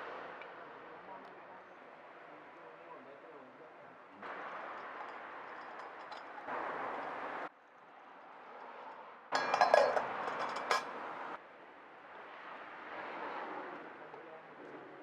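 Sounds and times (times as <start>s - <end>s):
metal cookware clinking: 4.6s - 7.2s, 9.4s - 11.0s.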